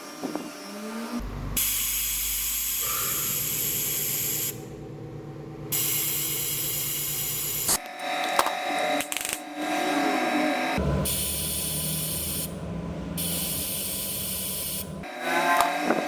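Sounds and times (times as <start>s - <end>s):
air hissing hard: 1.2s - 7.8s, 11.0s - 12.6s, 13.2s - 15.0s
low machine hum: 1.2s - 7.8s, 10.8s - 15.1s.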